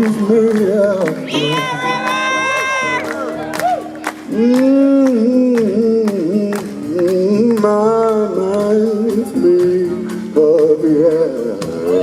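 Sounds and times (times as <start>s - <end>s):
lead melody gliding in pitch: 0.3s - 7.0s.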